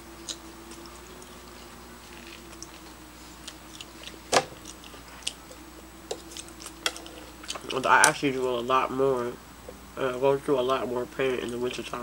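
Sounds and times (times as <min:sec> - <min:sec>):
faint steady hum: 0:00.0 - 0:12.0
chewing and mouth noises: 0:00.2 - 0:08.1.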